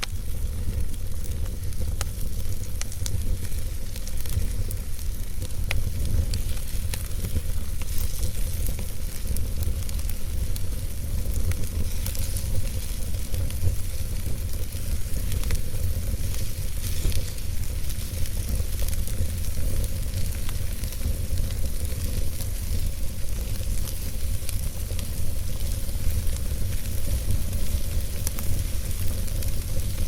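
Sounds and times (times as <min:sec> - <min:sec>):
fire crackling and popping: 0:00.0 - 0:30.0
fire hissing: 0:00.0 - 0:30.0
low rumble of flame: 0:00.0 - 0:30.0.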